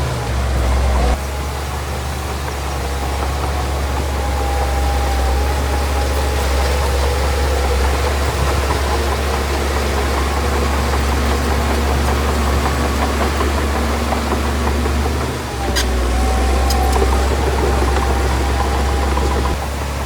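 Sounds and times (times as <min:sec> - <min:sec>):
diesel machine engine running: 0:00.0 - 0:20.0.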